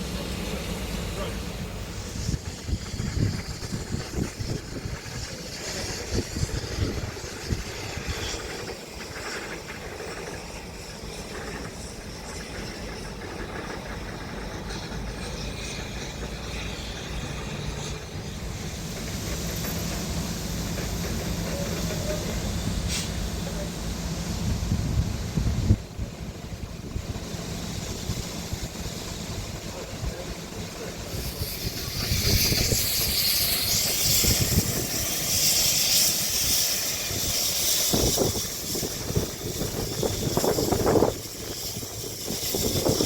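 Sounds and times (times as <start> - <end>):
wind buffeting microphone: 2.0 - 8.7, 24.4 - 30.4, 31.1 - 43.0.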